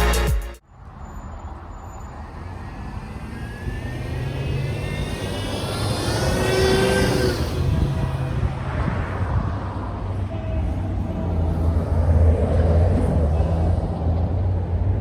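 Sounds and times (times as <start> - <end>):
pitch-shifting whine: 2.2 - 8.7.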